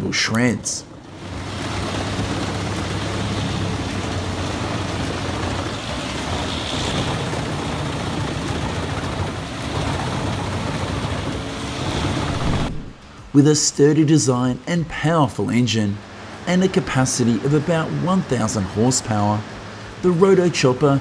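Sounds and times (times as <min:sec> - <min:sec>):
diesel engine low hum: 0:00.8 - 0:13.3
wood chipper grinding: 0:01.2 - 0:12.8.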